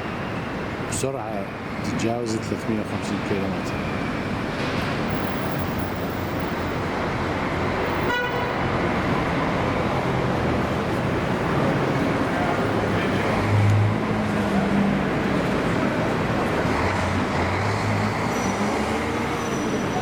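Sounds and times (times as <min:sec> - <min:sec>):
road traffic noise: 0:00.0 - 0:20.0
car horn beep: 0:07.9 - 0:08.7.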